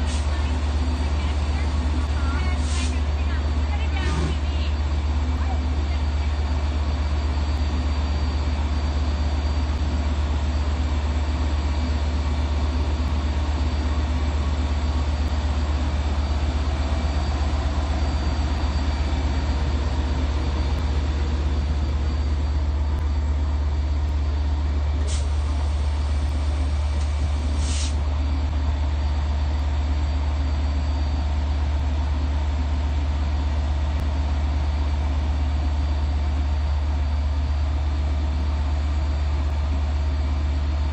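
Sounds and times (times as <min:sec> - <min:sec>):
diesel locomotives idling: 0:00.0 - 0:40.9
air hisses: 0:27.0 - 0:28.0.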